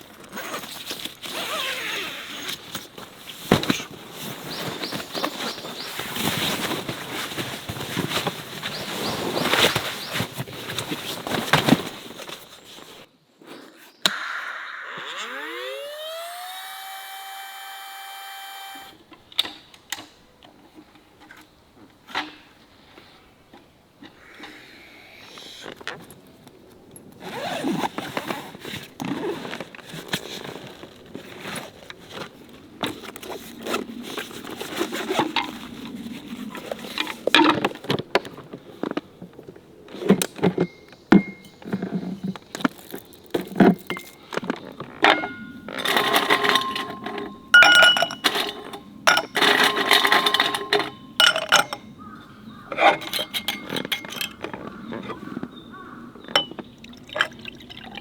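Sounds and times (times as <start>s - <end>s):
metal objects clinking and scraping: 41.2s - 52.0s, 52.7s - 54.7s, 56.3s - 57.4s
struck metal ringing: 45.1s - 52.0s.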